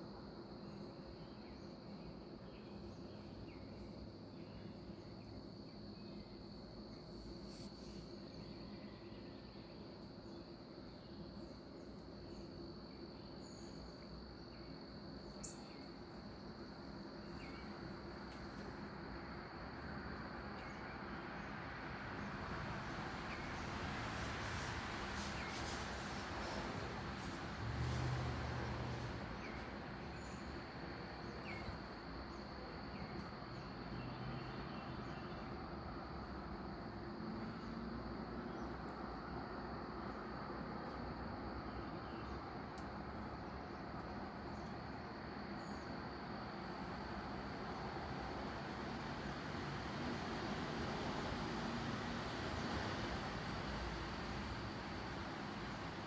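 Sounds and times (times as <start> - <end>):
crickets trilling: 0.0 - 56.0
high insect drone: 0.0 - 56.0
steady hiss: 0.0 - 56.0
bird chirping: 17.2 - 17.8.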